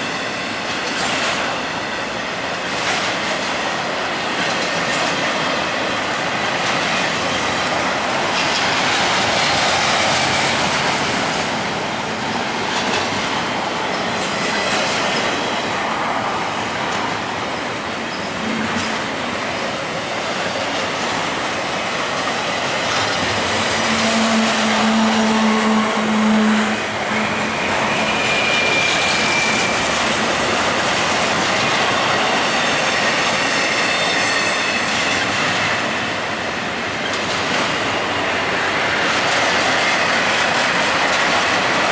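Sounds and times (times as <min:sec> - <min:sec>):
freight train wheels rushing on rails: 0:00.0 - 0:41.9
wheel squeals: 0:22.9 - 0:38.3.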